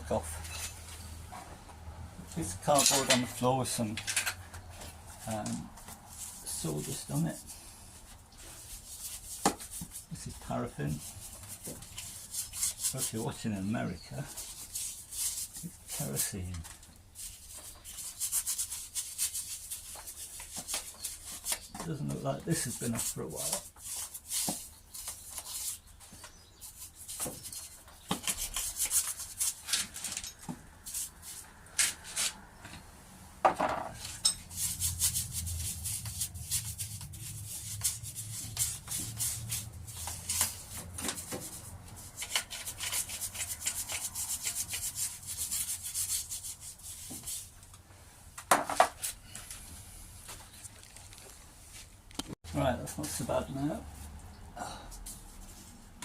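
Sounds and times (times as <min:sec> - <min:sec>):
scraping metal engine parts: 0:00.1 - 0:01.5, 0:02.3 - 0:07.6, 0:26.6 - 0:32.4, 0:33.7 - 0:46.3.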